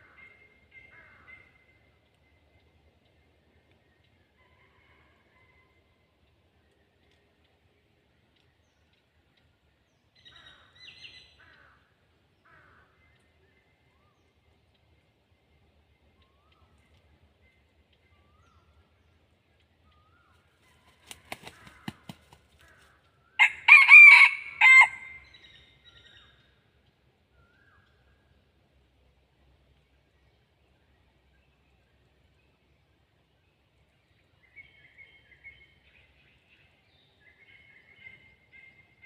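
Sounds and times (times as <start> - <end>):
faint soft bird calls: 0.0 - 23.4
rooster crowing: 23.4 - 25.2.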